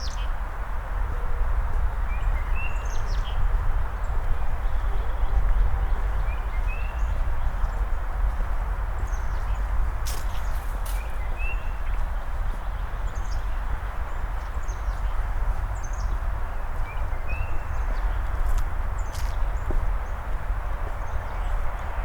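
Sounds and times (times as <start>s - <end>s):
songbirds chirping: 1.8s - 22.0s.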